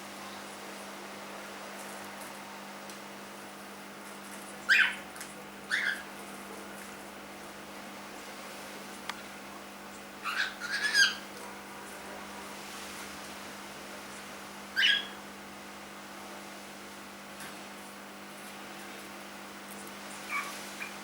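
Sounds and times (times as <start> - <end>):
cockatiel chirping: 4.7 - 5.0, 5.7 - 6.0, 10.2 - 11.2, 14.8 - 15.2.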